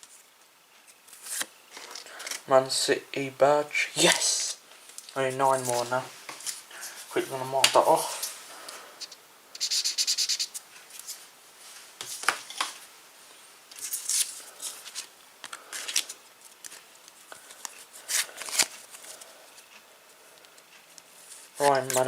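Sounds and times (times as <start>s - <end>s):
pen scratching on card: 9.6s - 10.6s
trading cards rustling and clicking: 13.8s - 19.7s.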